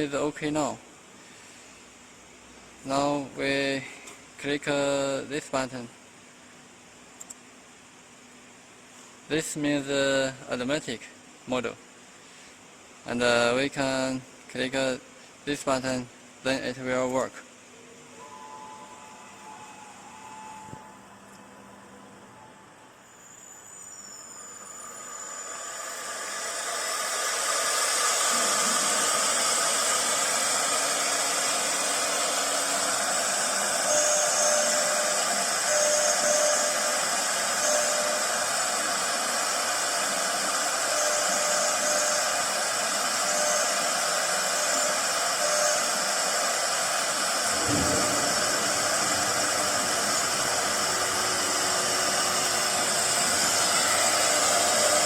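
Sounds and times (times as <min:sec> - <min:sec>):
router spindle high whine: 0:17.9 - 0:55.0.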